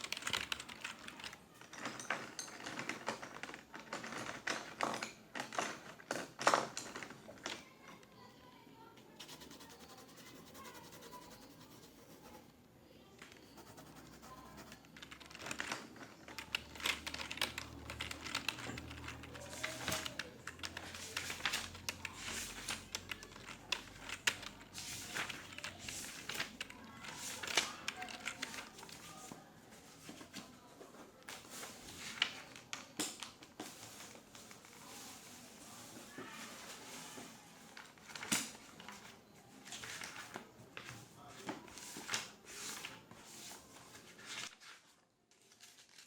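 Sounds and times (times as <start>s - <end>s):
keyboard typing: 0.0s - 1.4s, 9.2s - 12.5s, 13.3s - 29.2s
faint voices: 7.4s - 31.2s.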